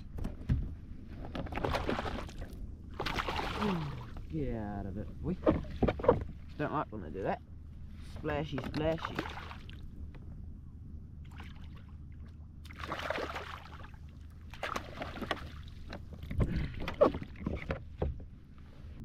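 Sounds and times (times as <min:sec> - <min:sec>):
knocks and thuds against hull: 0:00.0 - 0:04.3, 0:05.2 - 0:06.5, 0:14.6 - 0:18.4
fish splashing in water: 0:01.5 - 0:04.2, 0:09.0 - 0:09.8, 0:12.6 - 0:15.9.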